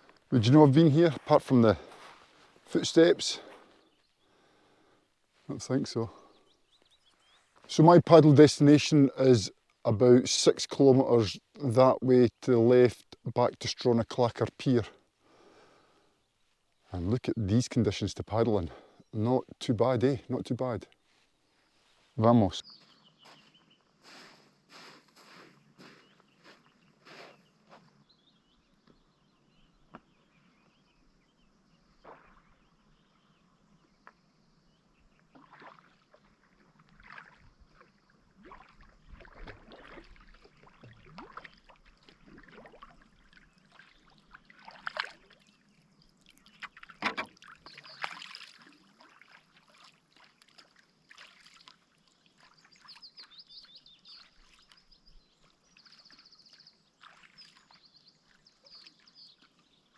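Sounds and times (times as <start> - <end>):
kayak paddle splashing: 35.2 - 59.9.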